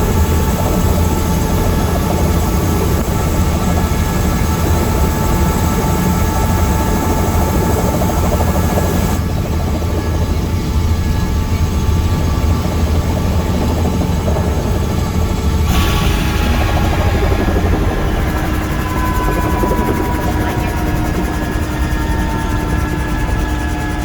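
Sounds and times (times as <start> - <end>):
helicopter engine and rotor drone: 0.0 - 24.0.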